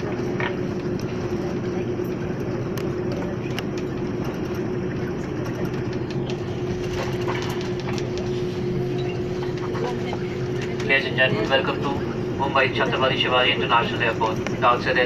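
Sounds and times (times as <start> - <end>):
air conditioning hum: 0.0 - 15.0
jet engines idling: 0.0 - 15.0.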